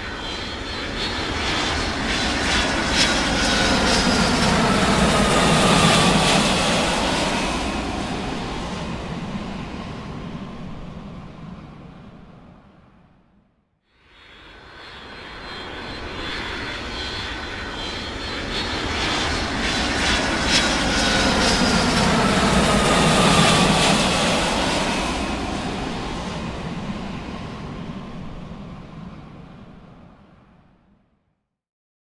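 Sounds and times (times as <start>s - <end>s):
airplane flying past: 0.0s - 31.0s.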